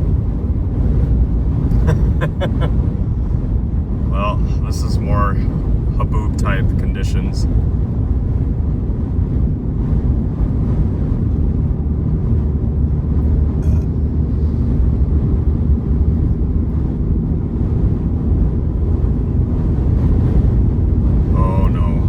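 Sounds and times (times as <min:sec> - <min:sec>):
car interior road rumble: 0:00.0 - 0:22.0
gusty wind buffeting vehicle: 0:00.0 - 0:22.0.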